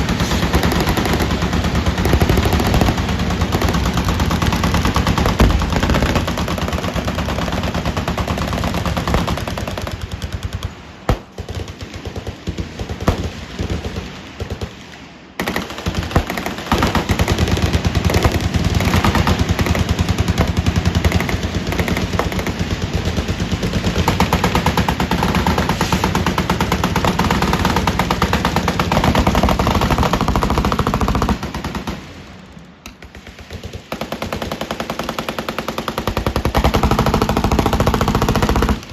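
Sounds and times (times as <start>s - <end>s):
machine guns firing automatic bursts: 0.0s - 38.9s
single gunshots: 11.1s - 11.5s, 13.0s - 14.9s.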